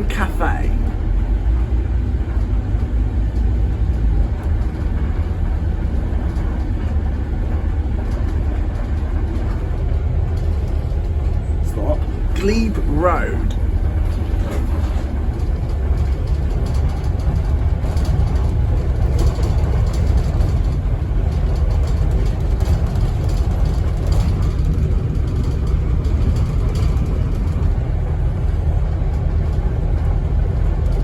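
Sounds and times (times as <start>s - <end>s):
bus engine rumble: 0.0s - 31.0s
bodywork rattles and clicks: 1.4s - 11.7s, 13.6s - 31.0s.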